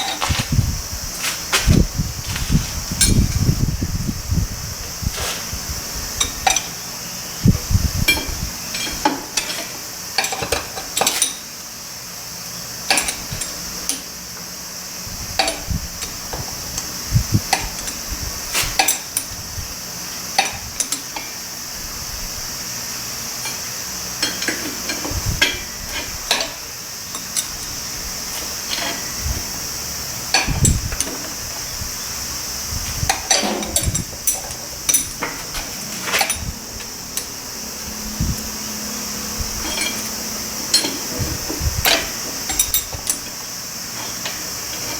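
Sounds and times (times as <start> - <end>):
metal tools clinking: 0.0 - 0.5, 8.1 - 11.5, 33.1 - 37.4, 39.6 - 41.2, 41.8 - 44.9
steady high hiss: 0.0 - 44.9.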